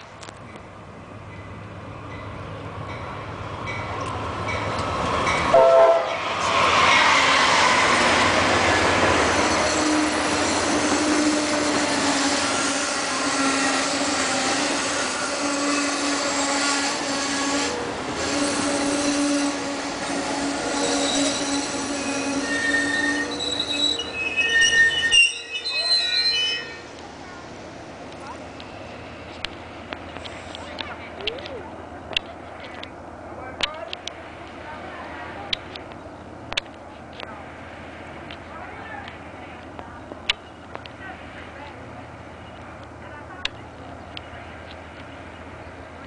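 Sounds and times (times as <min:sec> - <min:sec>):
train cars running: 0:00.0 - 0:46.0
loud train jolts: 0:04.9 - 0:31.2
train horn blast: 0:05.5 - 0:06.2
high wheel squeal: 0:09.0 - 0:26.9.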